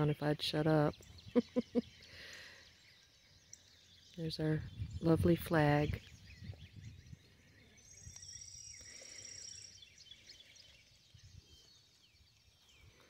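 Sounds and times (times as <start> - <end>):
faint songbirds chirping: 0.0 - 13.0.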